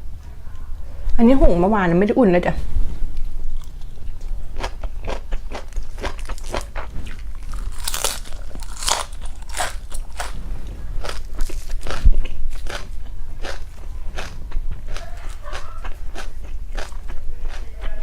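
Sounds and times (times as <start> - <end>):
person chewing crunchy vegetables: 3.1 - 10.4, 11.0 - 18.0.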